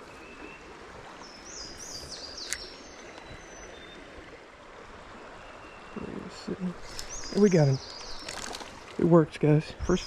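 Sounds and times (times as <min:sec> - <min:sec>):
creek water running: 0:00.0 - 0:10.0
sharp click: 0:02.4 - 0:02.7.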